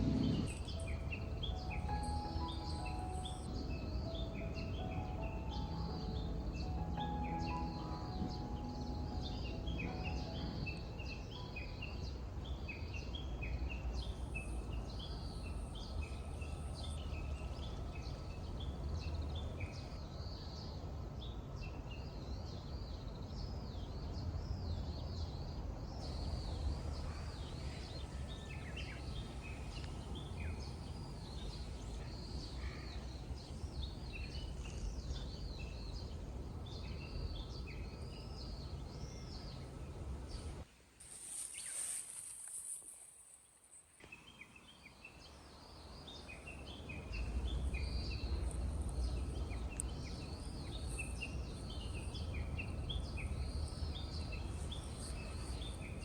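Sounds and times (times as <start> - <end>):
steady low rumble: 0.0 - 12.5, 46.7 - 56.0
small birds chirping: 0.0 - 56.0.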